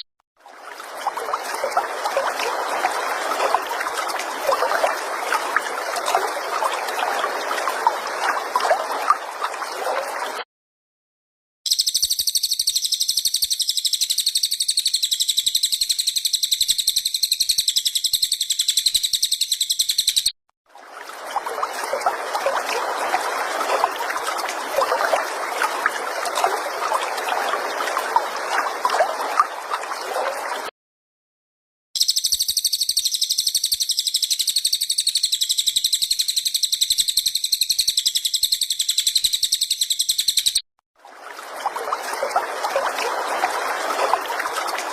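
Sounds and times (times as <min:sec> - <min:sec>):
high pulsing bird trill: 0:11.7 - 0:20.3, 0:32.0 - 0:40.6.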